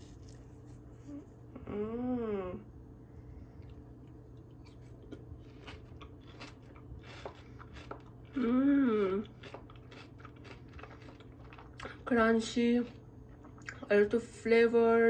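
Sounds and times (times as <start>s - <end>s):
crunchy chewing: 0.0s - 1.2s, 3.6s - 12.1s
person humming mmm: 1.1s - 2.7s, 8.4s - 9.3s.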